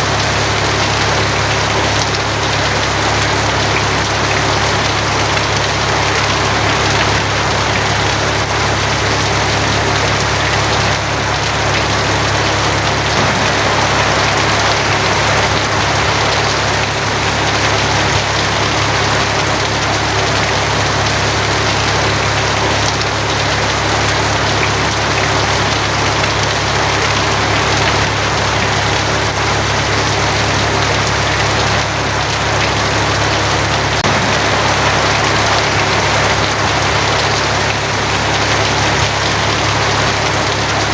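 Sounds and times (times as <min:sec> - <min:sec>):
heavy rain on a tin roof: 0:00.0 - 0:40.9
low rumble: 0:13.2 - 0:17.5, 0:34.0 - 0:37.7.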